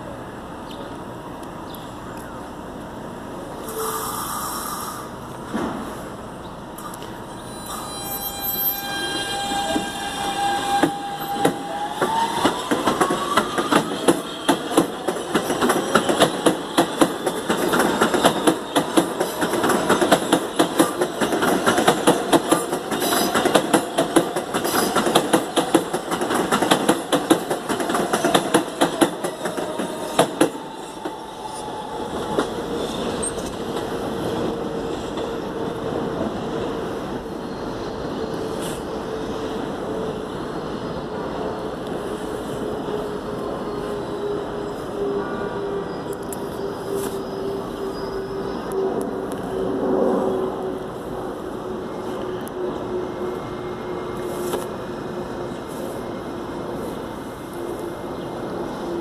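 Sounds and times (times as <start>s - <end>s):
train motor whine: 6.7s - 33.7s
wheels clacking over rail joints: 9.5s - 31.2s.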